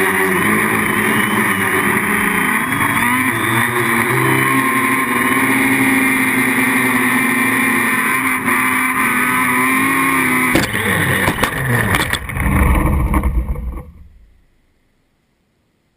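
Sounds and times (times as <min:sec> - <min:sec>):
drone motors whining: 0:00.0 - 0:14.5
knocks: 0:10.6 - 0:12.3.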